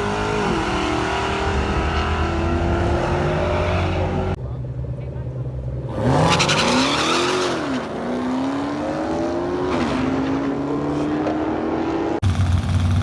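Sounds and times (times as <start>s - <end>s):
deep steady engine rumble: 4.0s - 6.1s.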